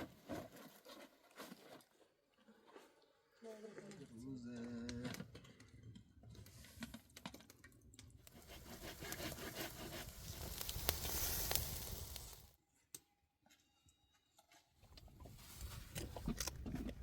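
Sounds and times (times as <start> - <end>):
dense rustling and crackling: 8.3 - 12.5.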